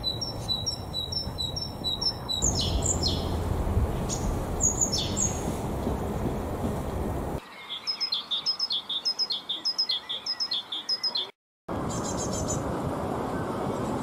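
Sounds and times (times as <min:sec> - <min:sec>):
small bird chirping rapidly: 0:00.0 - 0:03.4, 0:04.1 - 0:05.5, 0:07.6 - 0:11.3
low rushing noise: 0:02.4 - 0:07.4.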